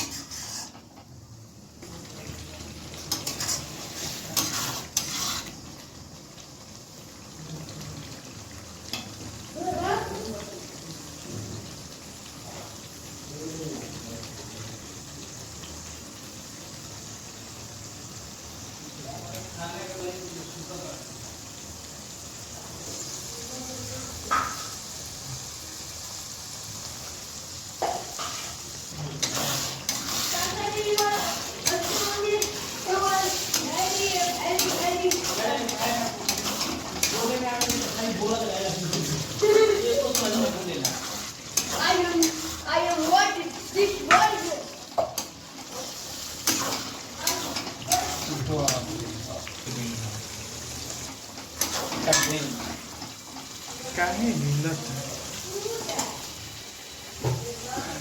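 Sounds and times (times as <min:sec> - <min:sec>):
metal spoon scraping a pan: 0:00.0 - 0:01.1, 0:02.9 - 0:05.6, 0:27.8 - 0:49.0, 0:50.3 - 0:53.8
food frying in a pan: 0:00.0 - 0:58.0.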